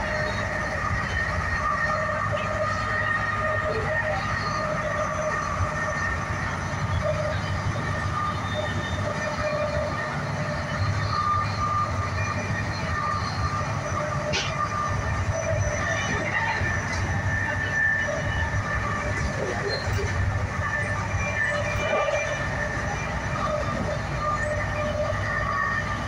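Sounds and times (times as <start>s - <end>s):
train running rumble: 0.0s - 26.0s.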